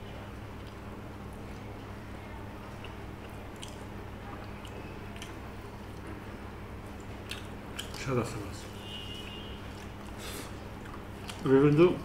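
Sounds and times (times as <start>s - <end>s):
steady low hum: 0.0s - 12.0s
person chewing: 2.7s - 6.1s, 6.9s - 8.1s, 9.6s - 11.8s
wet mouth clicks and smacks: 3.6s - 6.0s, 7.0s - 8.0s.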